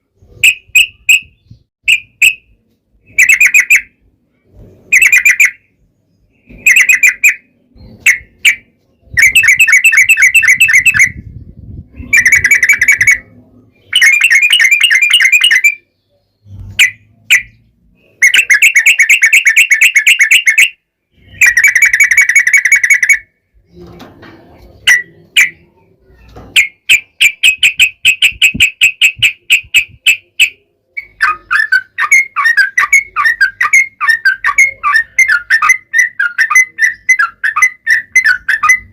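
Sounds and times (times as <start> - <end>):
bird singing rapid trills: 4.9 - 23.8.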